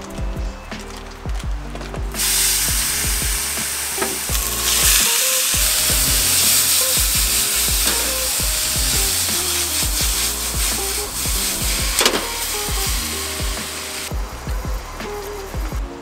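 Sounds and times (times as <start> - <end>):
food sizzling in a skillet: 2.2 - 14.1.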